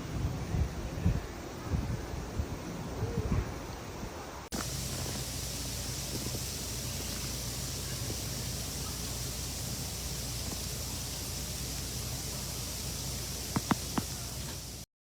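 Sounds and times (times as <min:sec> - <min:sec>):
even hiss: 0:00.2 - 0:14.9.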